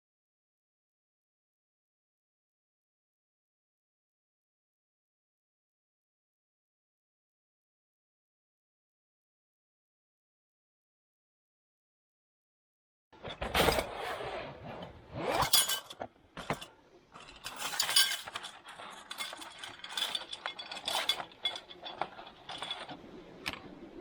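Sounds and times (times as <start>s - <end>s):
hard objects clinking together: 15.2s - 23.0s.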